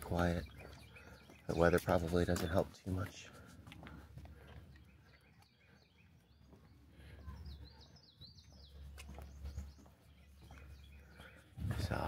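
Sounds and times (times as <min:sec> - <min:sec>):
faint bird chirping: 0:00.0 - 0:03.4, 0:04.2 - 0:12.0.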